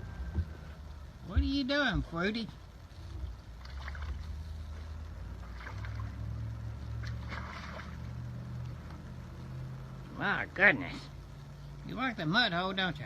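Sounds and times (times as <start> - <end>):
steady low hum: 0.0 - 13.0
mud and water sloshing: 3.2 - 8.8.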